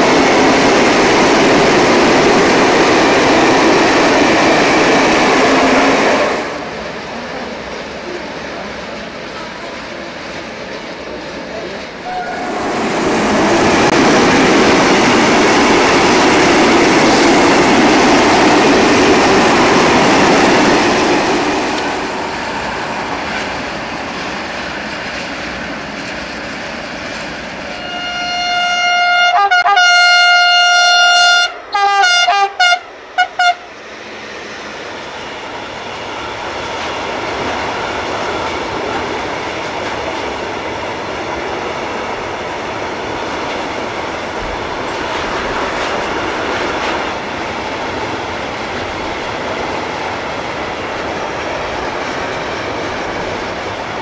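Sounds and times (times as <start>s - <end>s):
freight train rolling past: 0.0s - 54.0s
locomotive horn blasts: 12.0s - 12.5s, 27.7s - 33.7s.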